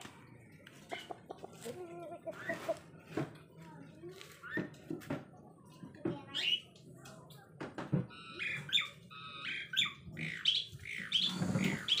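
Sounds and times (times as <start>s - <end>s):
high bird chirps and squawks: 6.3s - 6.7s, 8.1s - 12.0s.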